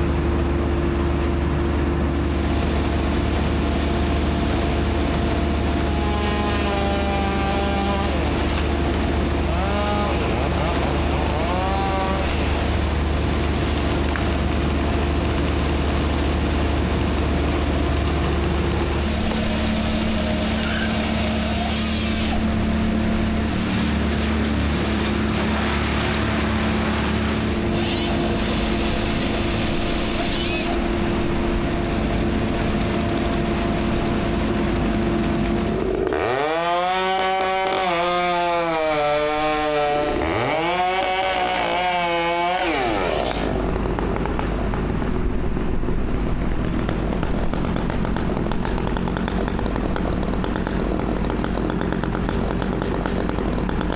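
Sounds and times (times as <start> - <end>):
machine engine running: 0.0 - 37.8, 42.4 - 53.9
chainsaw revving and cutting: 5.8 - 13.1, 18.7 - 30.9, 35.6 - 44.5, 47.4 - 53.9.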